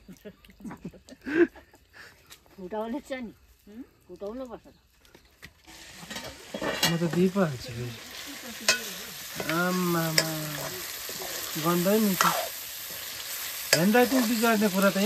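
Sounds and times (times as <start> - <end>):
food sizzling in a pan: 5.6 - 15.0
utensil clicking against pan: 13.7 - 14.3.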